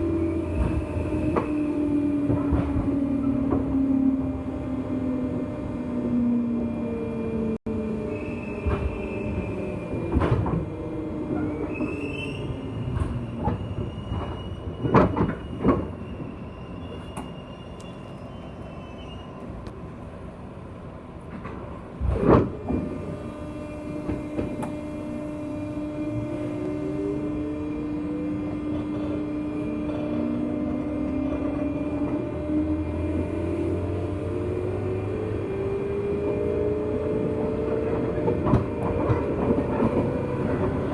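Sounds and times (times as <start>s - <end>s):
high wheel squeal: 8.0s - 10.1s, 11.4s - 19.4s
electric train motor tone: 22.7s - 40.9s.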